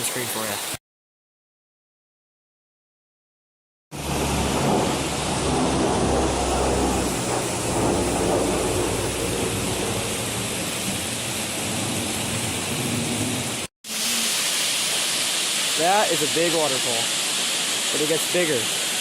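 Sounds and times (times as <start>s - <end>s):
waterfall roaring: 4.0s - 19.0s.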